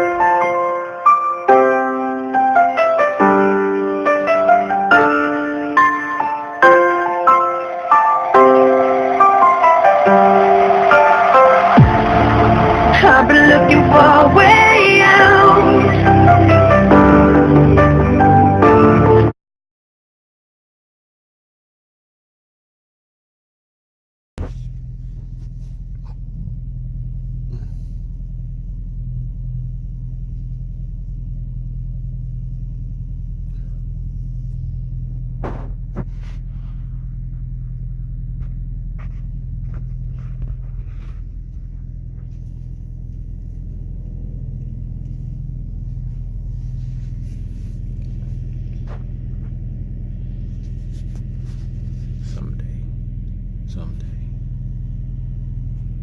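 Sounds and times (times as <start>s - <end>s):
vehicle engine running: 9.2s - 18.4s, 24.4s - 56.0s.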